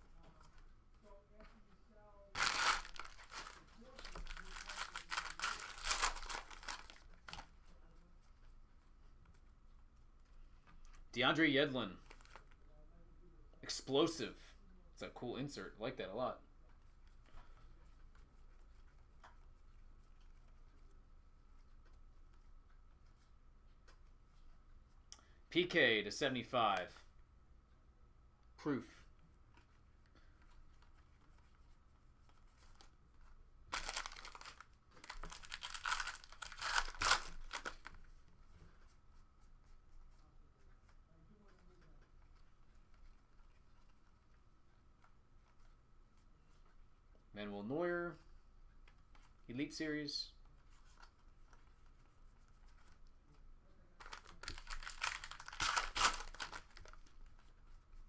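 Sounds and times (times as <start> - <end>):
wrapper tearing and crinkling: 2.4 - 7.4, 33.7 - 38.0, 54.0 - 57.1.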